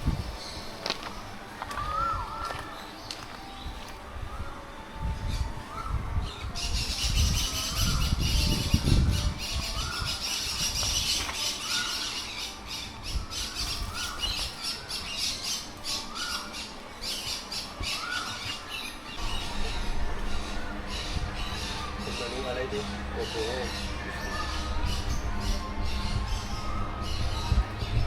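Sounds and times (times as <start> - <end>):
birds squawking and chattering: 0.0 - 28.0
low rumble: 19.2 - 28.0.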